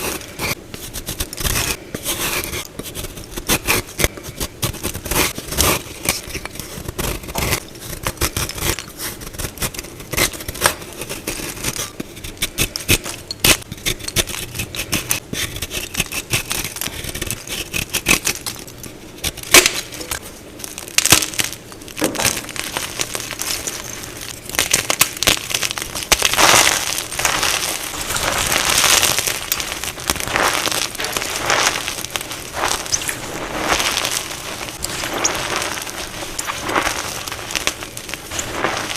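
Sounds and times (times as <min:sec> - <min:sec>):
chalk crunching and crumbling: 0:00.0 - 0:38.9.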